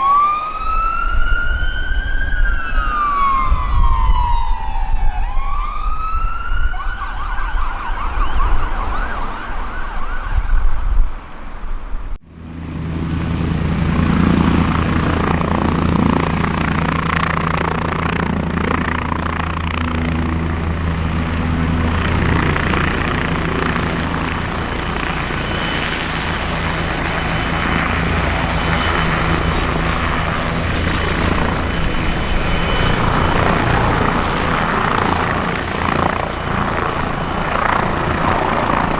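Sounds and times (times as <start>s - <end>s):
helicopter rotor drone: 0.0s - 10.6s, 12.2s - 38.9s
emergency siren wailing and yelping: 0.0s - 11.0s
traffic noise: 0.0s - 38.9s.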